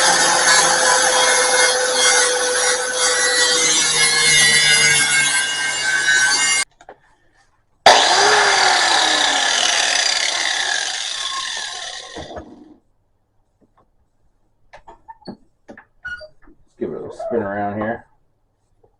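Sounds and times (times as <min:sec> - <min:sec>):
cutoff wheel grinding metal: 0:00.0 - 0:06.6, 0:07.9 - 0:12.5.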